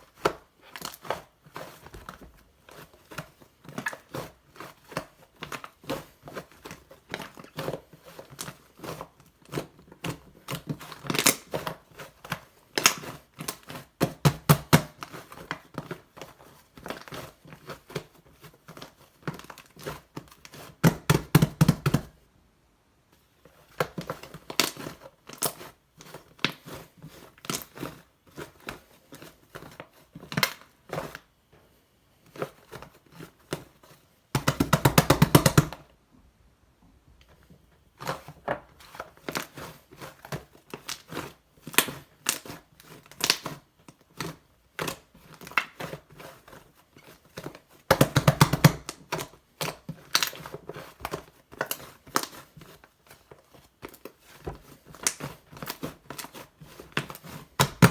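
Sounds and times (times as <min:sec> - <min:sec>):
slime crackling and popping: 0:08.4 - 0:15.6, 0:23.8 - 0:25.7, 0:40.7 - 0:43.6, 0:47.8 - 0:52.5, 0:53.9 - 0:57.9.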